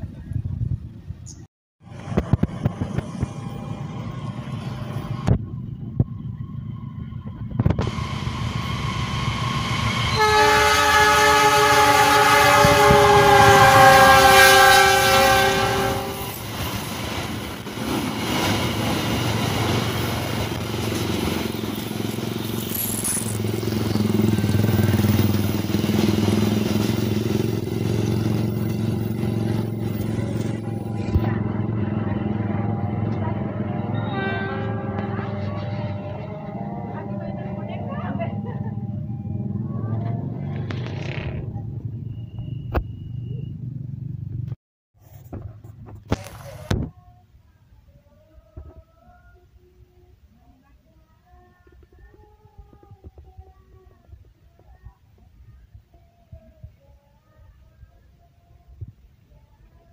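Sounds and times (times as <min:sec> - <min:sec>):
coaches rumbling on rails: 0:01.8 - 0:44.6
locomotive engine: 0:01.8 - 0:44.6
locomotive multi-tone horn: 0:10.0 - 0:16.6, 0:22.4 - 0:38.4.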